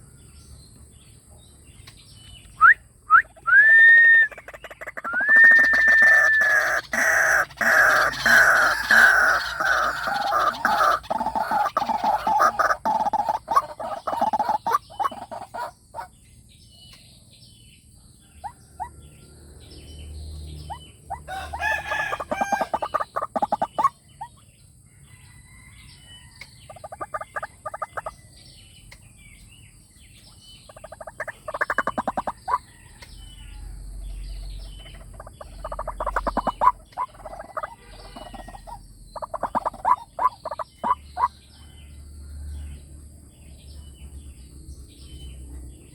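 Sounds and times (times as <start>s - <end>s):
waterhen croaking call: 3.2s - 16.1s, 20.7s - 24.0s, 26.7s - 28.1s, 30.7s - 32.8s, 34.4s - 41.3s.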